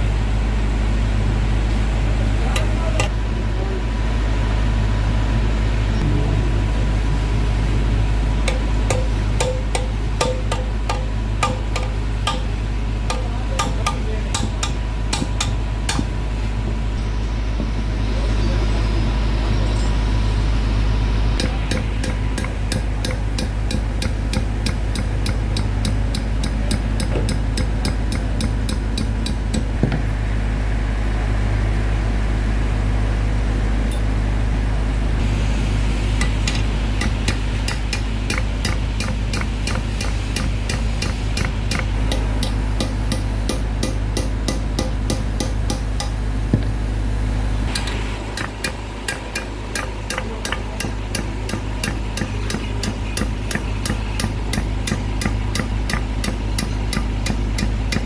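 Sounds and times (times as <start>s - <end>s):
low machine hum: 0.0s - 58.0s
sharp metallic taps: 8.5s - 16.2s, 21.4s - 30.0s, 36.2s - 46.9s, 47.7s - 58.0s.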